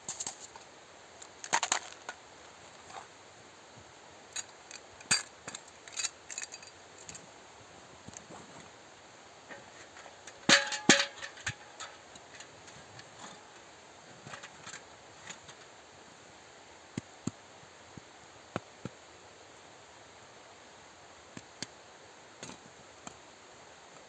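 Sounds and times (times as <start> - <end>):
loud knocks with metallic ring: 10.4 - 11.8.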